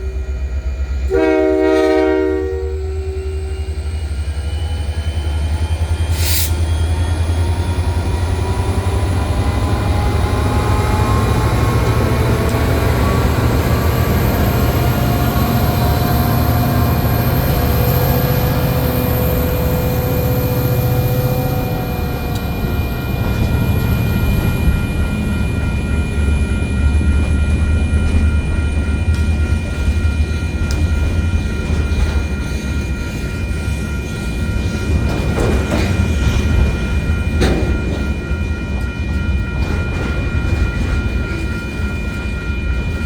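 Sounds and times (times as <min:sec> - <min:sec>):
freight train rumble: 0:00.0 - 0:43.0
wheels squealing on rail: 0:01.1 - 0:28.8.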